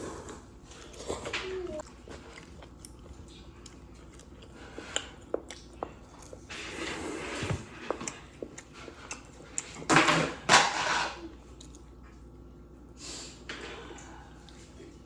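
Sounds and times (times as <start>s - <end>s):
chewing and biting: 0.4s - 9.9s.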